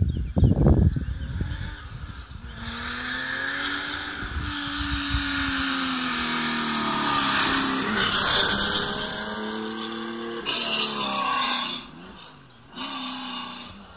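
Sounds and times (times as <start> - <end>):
wind buffeting microphone: 0.0 - 10.4
rally car engine approaching: 0.6 - 13.9.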